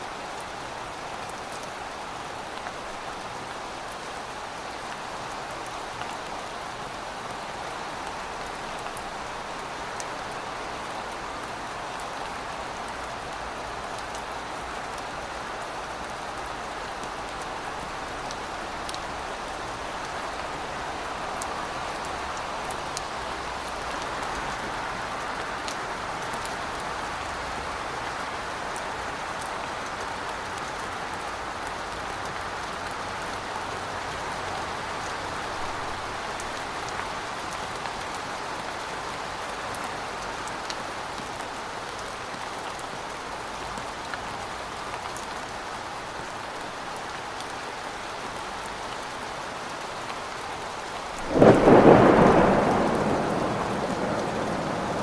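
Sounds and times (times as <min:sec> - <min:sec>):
heavy rain falling: 0:00.0 - 0:55.0
thunder clap rolling: 0:51.2 - 0:55.0.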